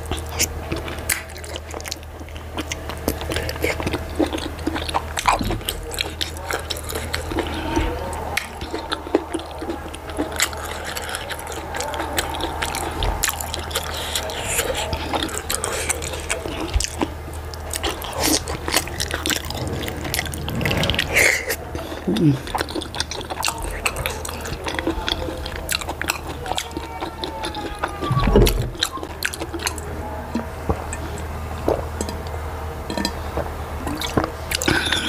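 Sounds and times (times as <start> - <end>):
low hum: 0.0 - 24.4
wet chewing and lip-smacking: 0.0 - 35.0.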